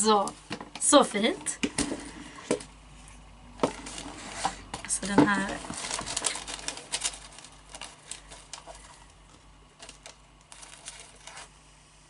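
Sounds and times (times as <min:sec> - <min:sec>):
packaging rustling: 0:03.6 - 0:11.6.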